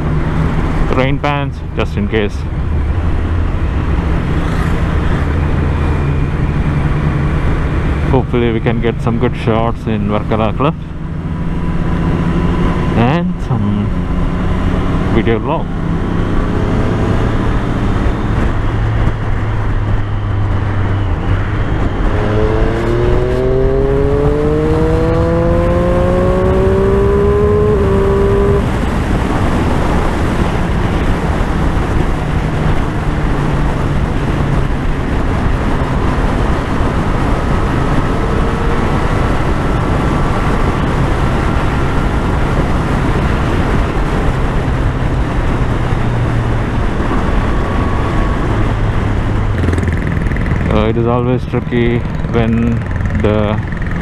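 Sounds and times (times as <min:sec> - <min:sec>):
motorcycle engine running: 0:02.5 - 0:54.0
wind rush over microphone: 0:10.9 - 0:54.0.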